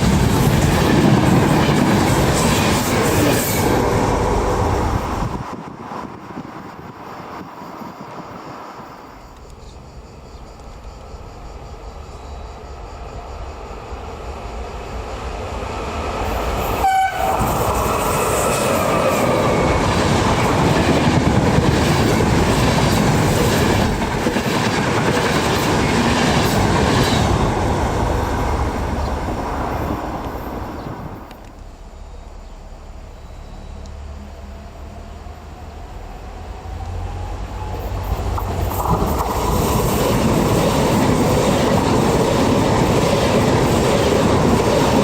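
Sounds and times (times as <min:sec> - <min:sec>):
train rumbling past: 0:00.0 - 0:45.0
train horn blast: 0:16.7 - 0:17.7.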